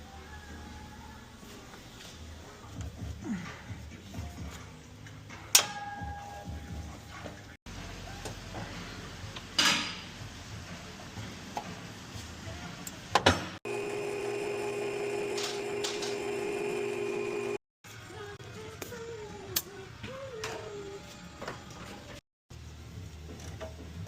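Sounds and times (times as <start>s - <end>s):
steady machine hum: 13.7s - 17.6s.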